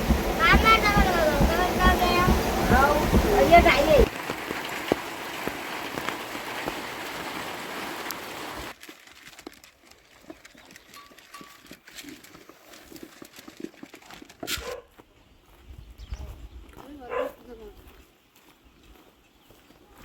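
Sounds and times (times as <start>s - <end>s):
scattered knocks and clicks: 0.0s - 4.1s
heavy rain hiss: 0.0s - 8.7s.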